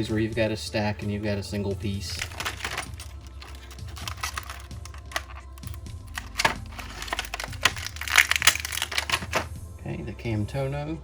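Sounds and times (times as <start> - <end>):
plastic pieces clicking and tapping: 2.2 - 9.6.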